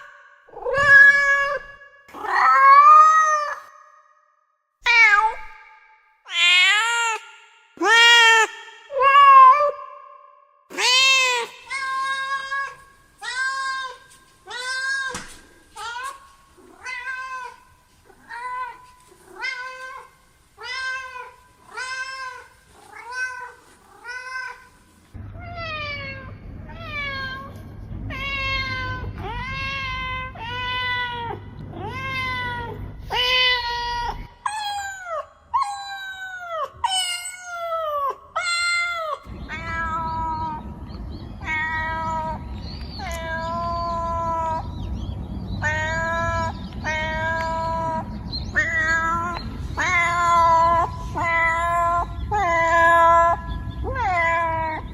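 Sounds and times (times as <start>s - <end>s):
cats meowing: 0.0s - 3.7s, 10.7s - 24.8s, 25.4s - 54.9s
low steady hum: 11.5s - 35.9s, 39.2s - 54.9s.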